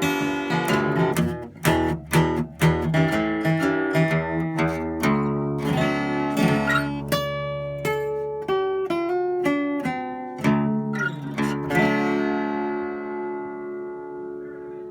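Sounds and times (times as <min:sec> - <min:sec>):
fingerstyle acoustic guitar: 0:00.0 - 0:14.9.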